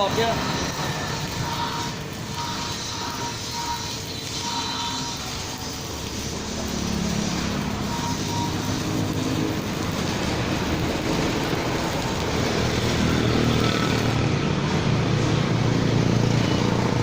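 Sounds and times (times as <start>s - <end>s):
welding arc burning: 0.0s - 17.0s.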